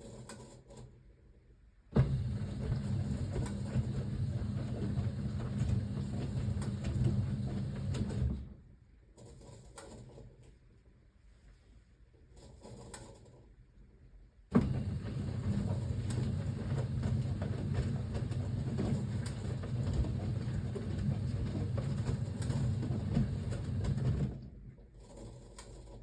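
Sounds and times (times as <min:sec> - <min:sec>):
washing machine drum rumbling: 0:02.0 - 0:08.5, 0:14.6 - 0:24.4.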